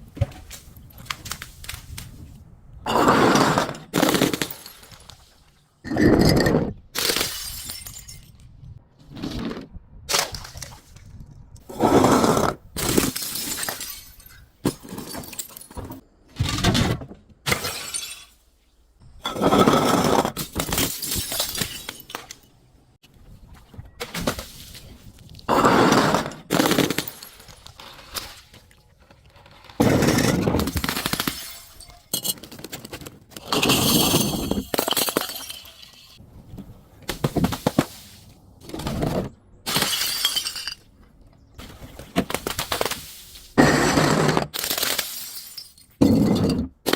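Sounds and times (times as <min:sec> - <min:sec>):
glass bottles smashing: 0:02.9 - 0:05.2, 0:06.0 - 0:08.4, 0:12.8 - 0:16.0, 0:17.5 - 0:18.4, 0:20.3 - 0:22.5, 0:25.9 - 0:27.9, 0:30.0 - 0:32.8, 0:33.4 - 0:36.2, 0:39.7 - 0:40.9, 0:42.2 - 0:46.9
glass shards tinkling: 0:31.4 - 0:32.4, 0:33.6 - 0:36.2.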